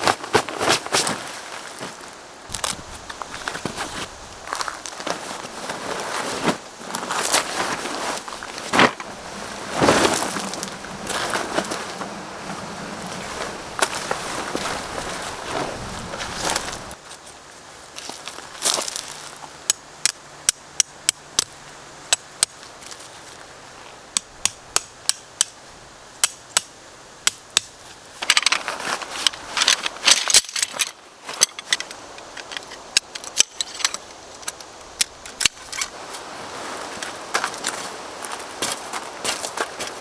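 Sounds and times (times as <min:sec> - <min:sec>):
crackling handling noise: 0:00.0 - 0:19.5, 0:27.8 - 0:40.0.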